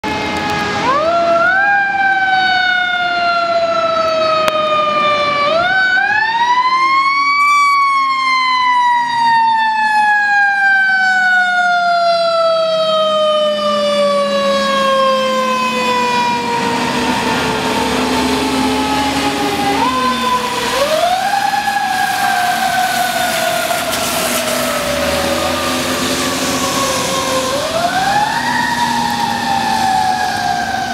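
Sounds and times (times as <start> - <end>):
fire engine siren winding: 0.0 - 30.9
truck engine and road noise: 0.0 - 30.9.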